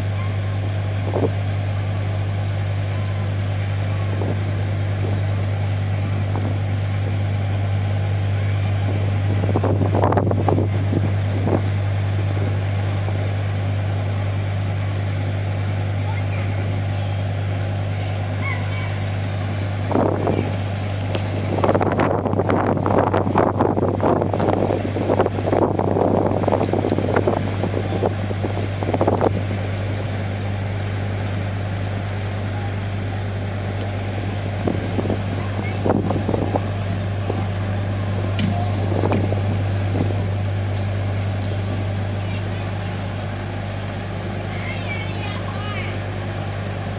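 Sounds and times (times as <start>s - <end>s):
wind buffeting microphone: 0.0s - 15.5s, 16.3s - 43.5s
ship engines humming: 0.0s - 46.9s.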